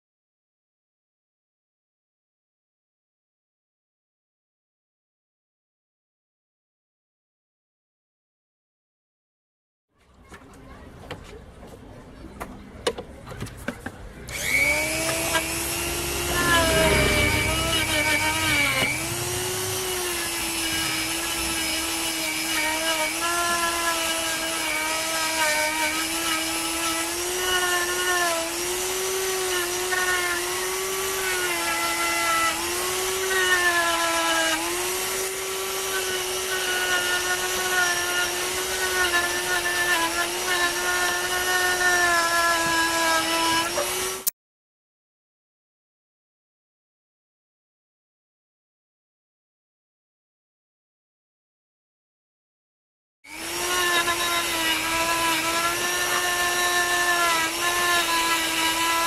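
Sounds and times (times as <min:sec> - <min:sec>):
electric power tool whining: 0:14.3 - 0:44.3, 0:53.3 - 0:59.0.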